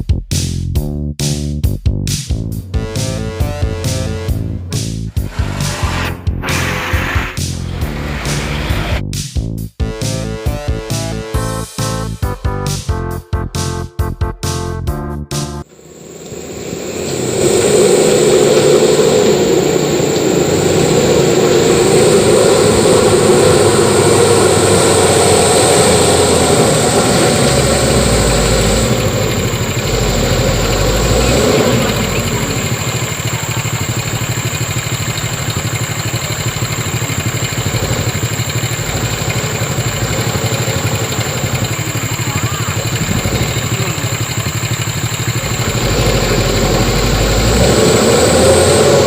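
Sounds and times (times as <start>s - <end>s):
truck diesel engine running: 1.6s - 9.2s, 15.6s - 49.0s.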